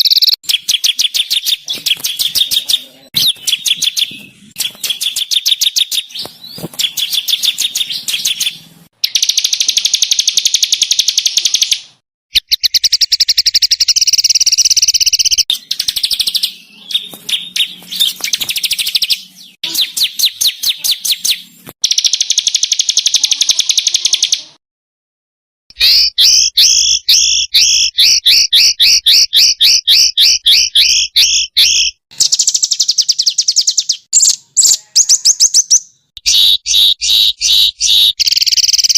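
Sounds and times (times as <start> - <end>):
songbirds trilling and chattering: 0.0 - 24.6, 25.8 - 38.9.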